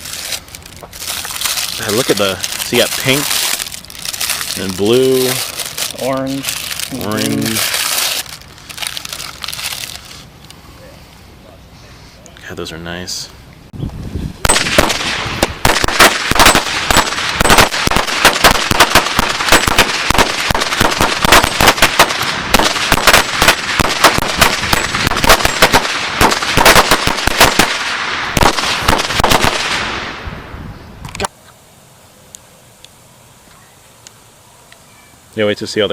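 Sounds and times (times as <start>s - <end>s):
firecrackers crackling: 0.0s - 10.3s, 14.4s - 30.5s.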